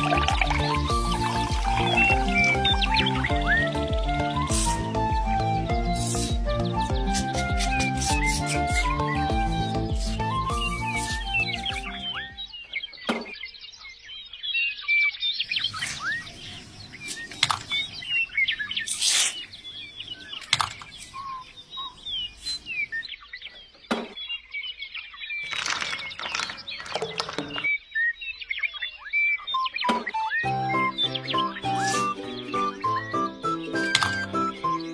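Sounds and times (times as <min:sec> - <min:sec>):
flock of small birds chirping: 0:09.9 - 0:25.6.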